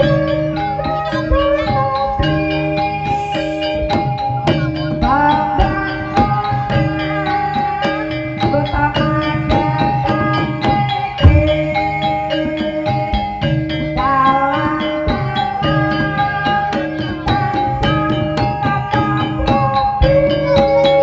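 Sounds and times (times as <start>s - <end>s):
hand drum beats: 0.0s - 21.0s
metallophones playing melody: 0.0s - 21.0s
person singing: 0.0s - 21.0s.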